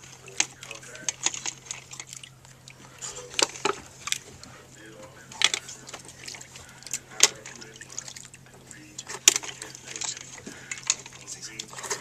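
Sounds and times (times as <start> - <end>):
mussel shells clattering: 0.0 - 4.5
low steady hum: 0.0 - 12.0.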